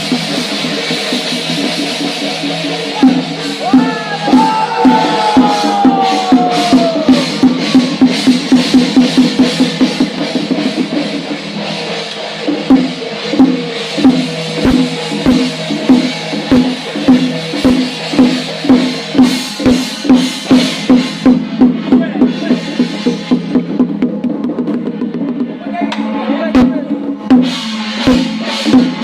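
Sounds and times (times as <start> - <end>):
temple drum beating: 0.0 - 29.0.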